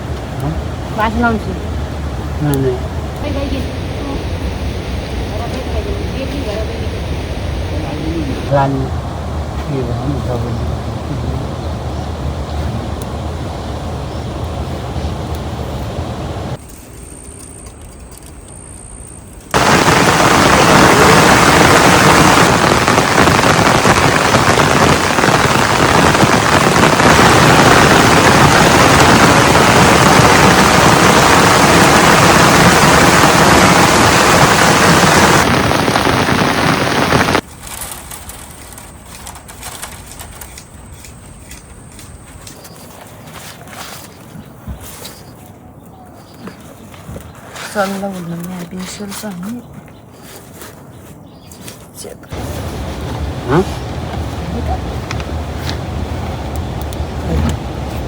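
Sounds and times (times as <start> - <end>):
heavy rain hiss: 0.0 - 16.6, 19.5 - 37.5, 52.3 - 58.0.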